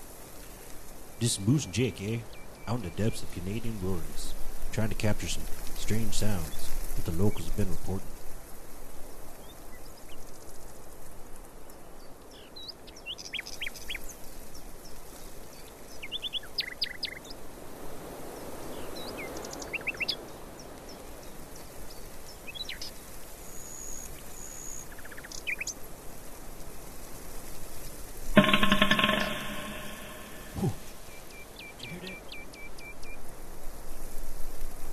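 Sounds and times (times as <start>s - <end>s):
outdoor background noise: 0.0s - 34.9s
birds chirping: 1.2s - 8.0s, 28.4s - 30.9s, 31.6s - 32.6s
high whistled note: 28.4s - 30.8s.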